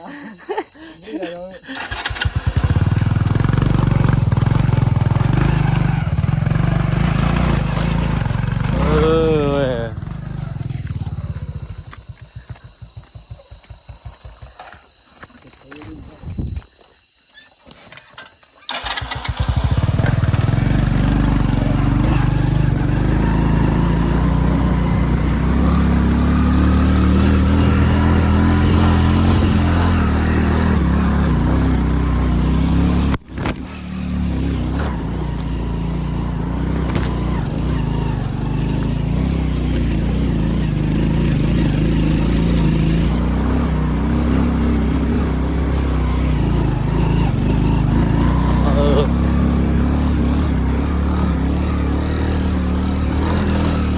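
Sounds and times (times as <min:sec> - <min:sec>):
motorcycle engine running: 0:01.8 - 0:16.6, 0:18.7 - 0:53.9.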